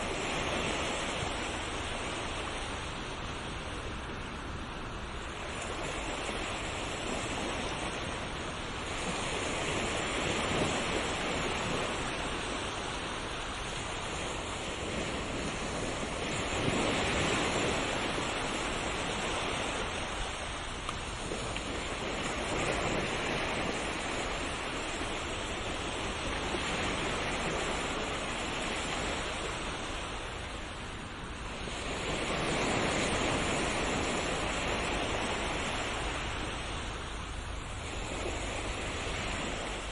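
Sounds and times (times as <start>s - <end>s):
sea waves washing in: 0.0s - 39.9s.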